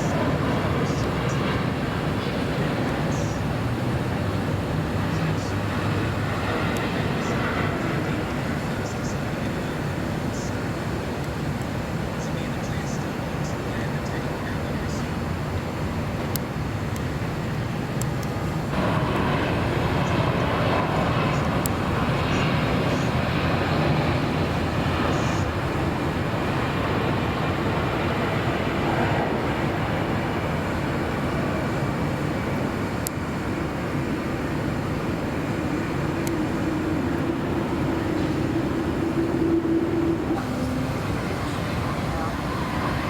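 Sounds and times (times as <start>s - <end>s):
jet airliner passing: 0.0s - 43.0s.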